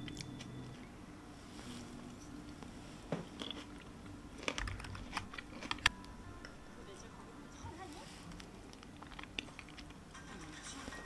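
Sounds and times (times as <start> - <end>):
person chewing tomato: 3.3 - 5.9.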